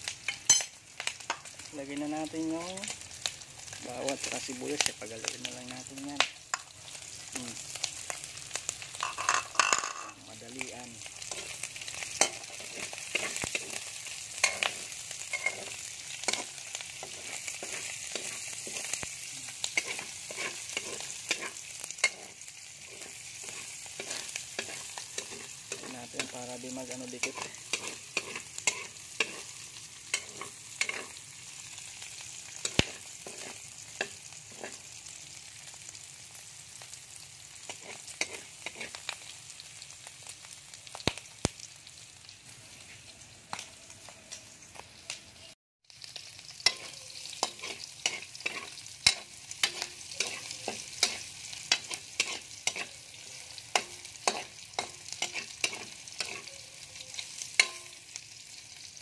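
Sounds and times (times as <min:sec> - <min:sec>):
food sizzling in a wok: 0:00.0 - 0:59.0
utensil scraping a metal wok: 0:08.9 - 0:31.2, 0:32.5 - 0:34.9, 0:37.6 - 0:39.2, 0:46.6 - 0:58.1.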